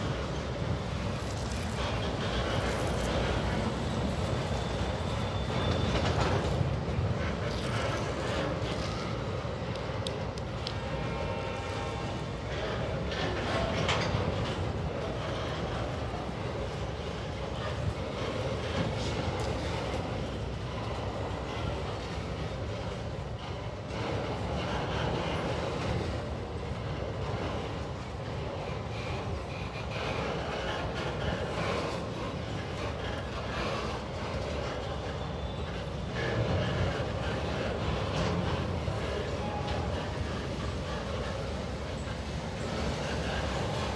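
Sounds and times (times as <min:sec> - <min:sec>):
faint rail clicks: 0:00.0 - 0:43.9
freight train rolling past: 0:00.0 - 0:43.9.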